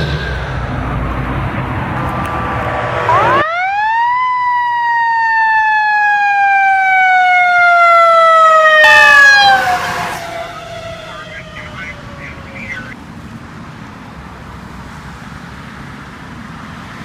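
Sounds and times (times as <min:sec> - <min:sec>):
vehicle rushing past: 0:00.0 - 0:03.6, 0:09.0 - 0:13.0
mechanical siren wailing: 0:02.4 - 0:13.0.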